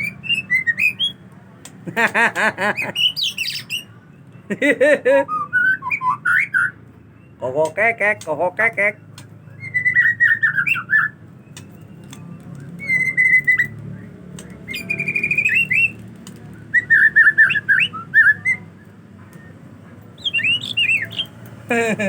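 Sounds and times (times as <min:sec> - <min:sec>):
bird singing whistled notes: 0:00.0 - 0:01.2, 0:03.0 - 0:04.0, 0:05.3 - 0:07.4, 0:09.1 - 0:19.6, 0:20.2 - 0:21.5.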